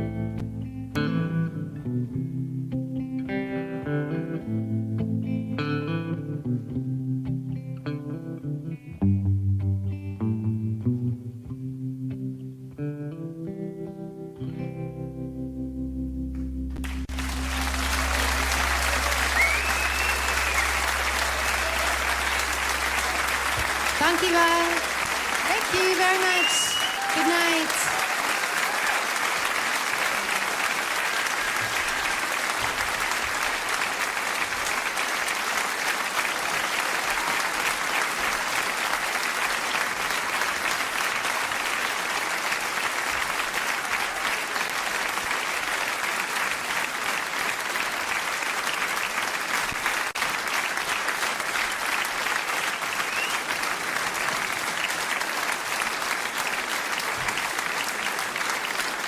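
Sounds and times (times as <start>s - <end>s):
audience applauding: 16.8s - 59.0s.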